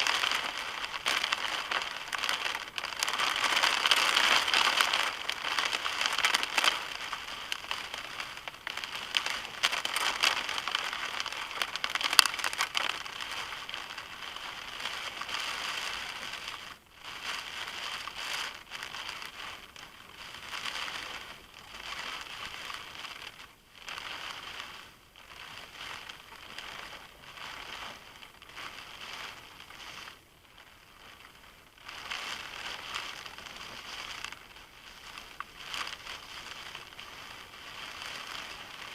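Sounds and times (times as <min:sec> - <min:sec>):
heavy rain drumming on a car: 0:00.0 - 0:29.7.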